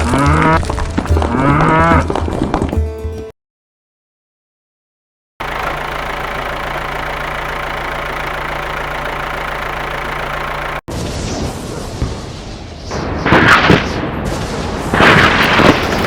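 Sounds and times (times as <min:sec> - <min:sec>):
engine humming steadily: 0:05.4 - 0:10.9.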